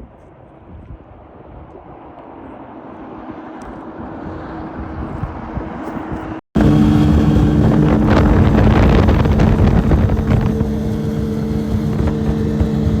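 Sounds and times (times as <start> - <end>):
wind rushing over microphone: 3.6 - 13.0
outboard motor running at high speed: 6.6 - 13.0.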